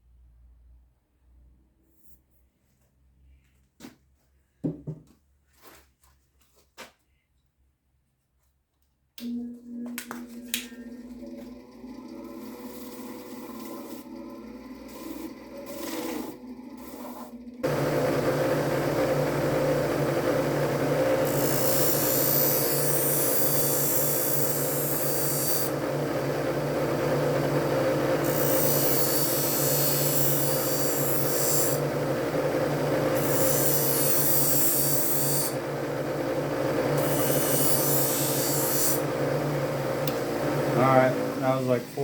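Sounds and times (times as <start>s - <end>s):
knife sharpener humming: 14.8s - 41.8s.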